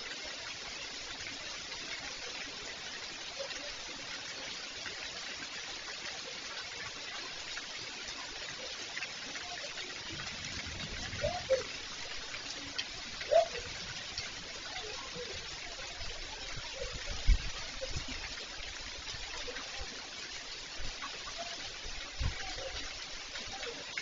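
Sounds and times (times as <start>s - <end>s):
steady rain falling: 0.0s - 24.0s
rising and falling animal call: 13.2s - 13.9s.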